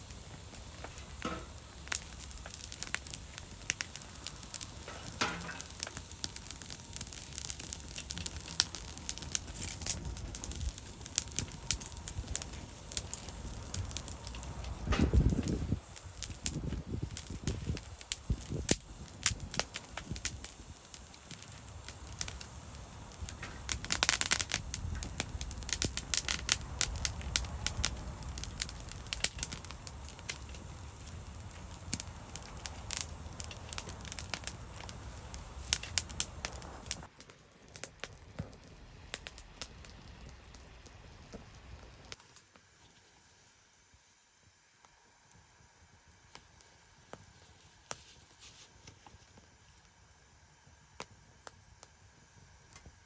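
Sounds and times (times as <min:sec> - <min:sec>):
low steady rumble: 0:00.0 - 0:37.2
wood fire crackling: 0:00.0 - 0:53.0.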